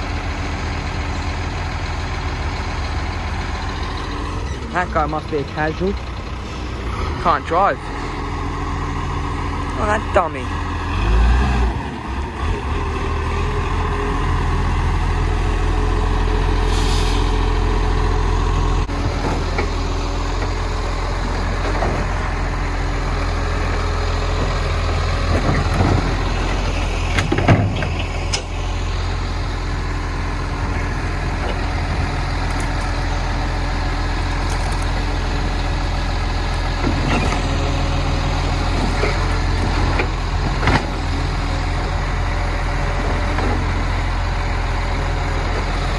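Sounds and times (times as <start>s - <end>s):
diesel engine running: 0.0s - 45.9s
air hiss: 16.7s - 17.3s.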